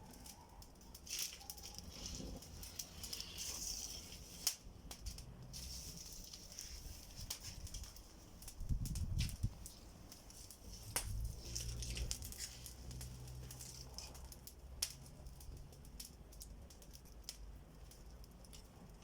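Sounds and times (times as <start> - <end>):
campfire crackling: 0.0 - 19.0
sharp pops: 8.8 - 11.2
low rumble: 10.7 - 13.4.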